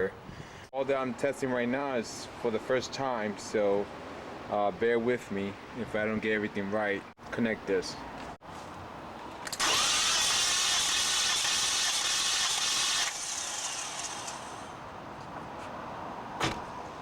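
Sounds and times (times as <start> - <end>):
starter cranking car engine: 9.5 - 14.7
loud hiss: 9.6 - 14.7.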